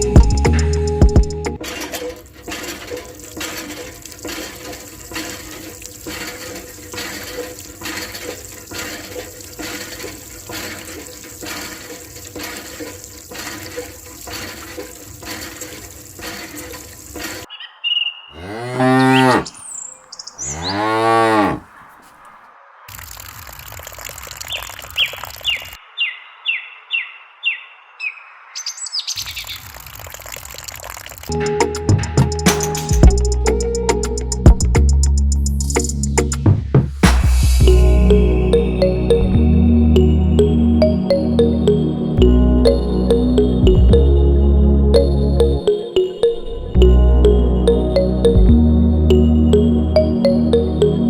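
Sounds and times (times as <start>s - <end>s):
rhythmic beat: 0.0s - 1.6s, 31.3s - 39.4s, 43.1s - 44.1s, 45.4s - 51.0s
cow mooing: 18.4s - 19.6s, 20.4s - 22.0s.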